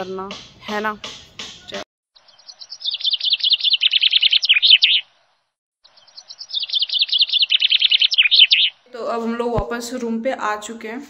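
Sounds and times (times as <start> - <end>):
songbird chirping: 0.0 - 10.1.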